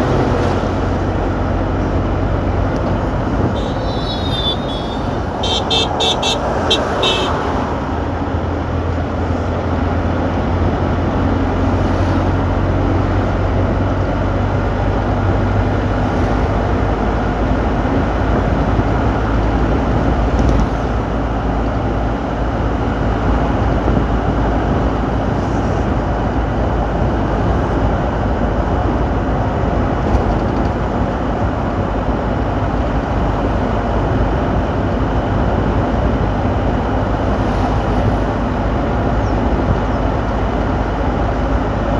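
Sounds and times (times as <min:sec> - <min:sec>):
car engine rumble: 0:00.0 - 0:41.9
road noise: 0:00.0 - 0:41.9.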